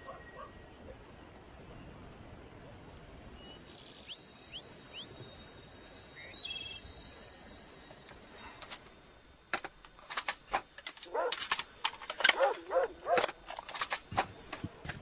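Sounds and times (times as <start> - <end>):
faint open-air ambience: 0.0 - 15.0
small bird chirping: 6.1 - 6.9.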